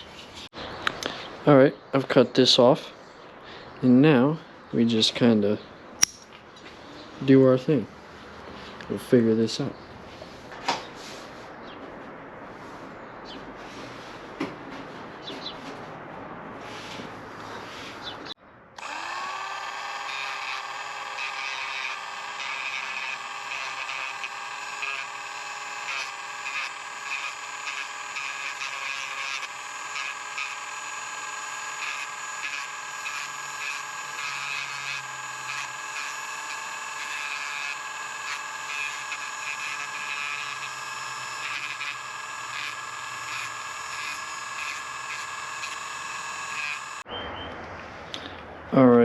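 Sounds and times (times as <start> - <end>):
plastic welding tool whine: 18.8 - 47.0.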